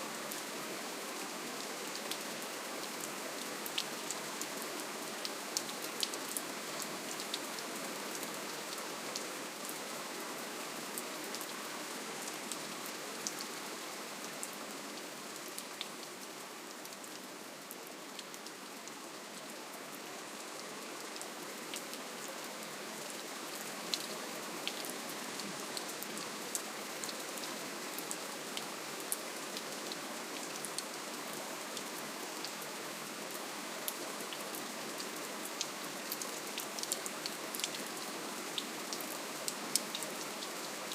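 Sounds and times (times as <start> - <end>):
gentle rain hiss: 0.0 - 40.9.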